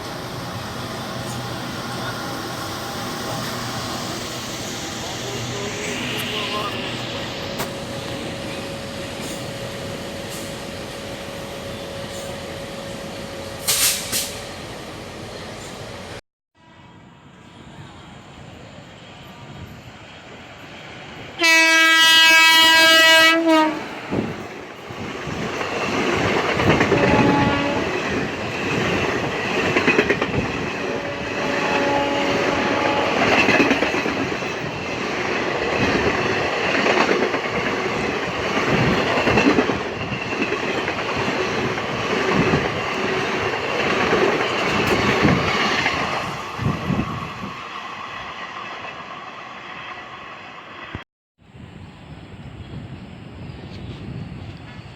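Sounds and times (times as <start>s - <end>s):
locomotive horn: 21.4s - 24.2s, 26.8s - 28.1s, 30.8s - 33.6s.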